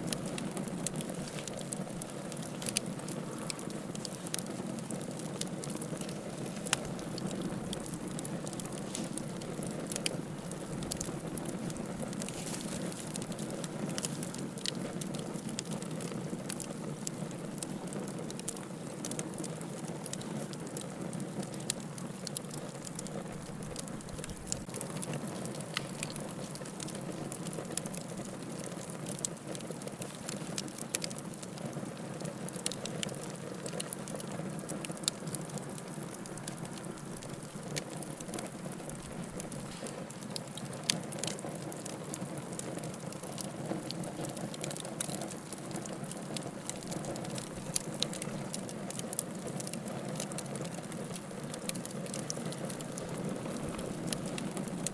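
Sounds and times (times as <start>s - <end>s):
soft rush of flame: 0.0s - 16.6s, 34.8s - 41.3s
wood fire crackling: 0.0s - 54.9s.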